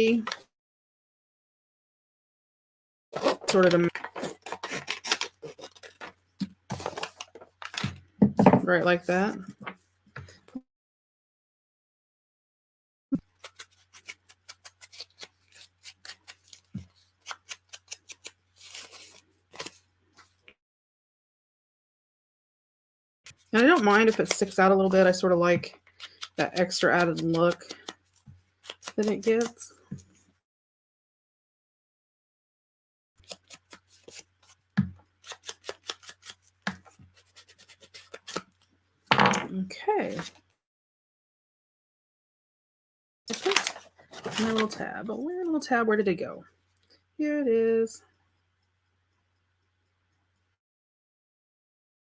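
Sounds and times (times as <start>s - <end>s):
scissors snipping paper: 3.2s - 6.1s, 13.4s - 19.8s, 23.6s - 29.6s, 33.2s - 34.6s, 35.2s - 38.6s, 43.3s - 44.8s
paper rustling: 3.2s - 8.0s, 13.3s - 20.3s, 35.2s - 38.6s, 43.3s - 44.9s.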